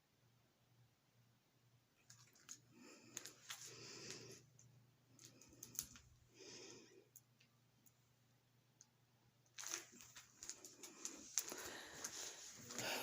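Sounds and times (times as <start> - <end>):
low electrical hum: 0.0 - 13.0
soft breathing: 2.4 - 7.2, 9.7 - 13.0.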